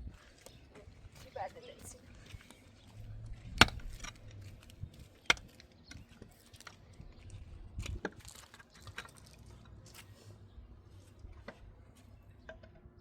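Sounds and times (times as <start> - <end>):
sharp clicks and knocks: 3.6 - 4.4.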